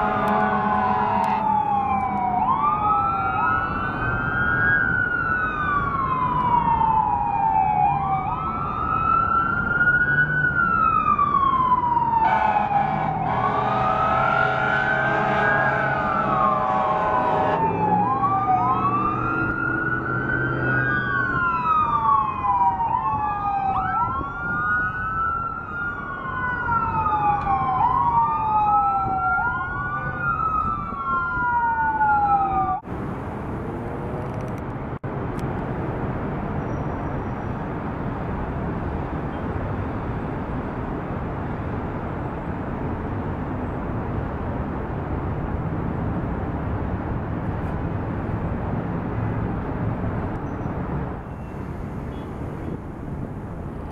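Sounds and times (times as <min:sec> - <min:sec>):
emergency vehicle siren wailing: 0:00.0 - 0:33.1
rumble of street traffic: 0:00.0 - 0:53.9.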